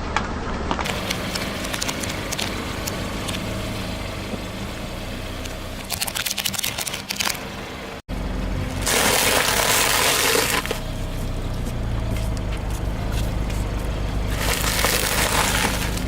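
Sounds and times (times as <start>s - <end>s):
car engine running low: 0.4s - 16.0s
rushing crush: 8.6s - 11.0s, 12.5s - 16.0s
tyre crunching over objects: 8.7s - 16.0s.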